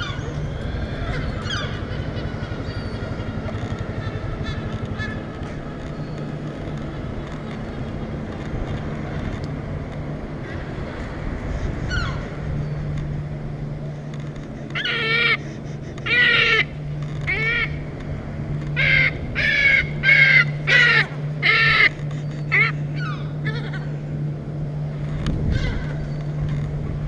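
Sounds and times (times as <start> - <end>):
gull squawking: 0.0 - 5.8, 11.8 - 12.3, 14.7 - 17.8, 18.7 - 24.0, 25.4 - 26.0
low hum: 0.0 - 27.0.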